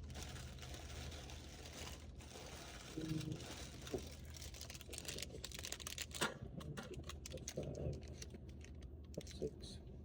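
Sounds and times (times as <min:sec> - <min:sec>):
plastic snack bags crinkling: 0:00.0 - 0:06.2
low steady hum: 0:00.0 - 0:10.0.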